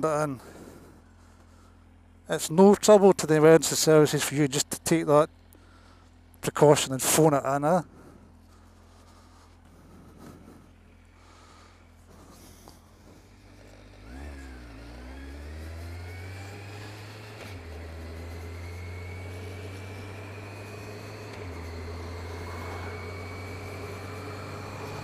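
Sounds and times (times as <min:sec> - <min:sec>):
motorcycle engine accelerating: 0:07.5 - 0:25.0.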